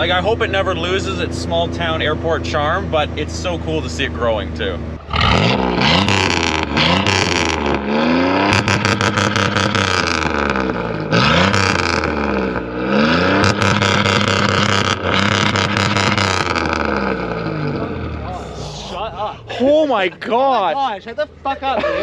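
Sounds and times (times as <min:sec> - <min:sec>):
car engine revving: 0:00.0 - 0:22.0
exhaust crackling pops: 0:05.0 - 0:18.2.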